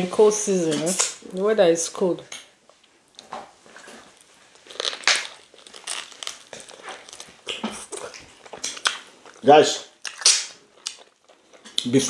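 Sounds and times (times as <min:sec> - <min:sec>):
person biting and chewing food: 0:03.1 - 0:12.0.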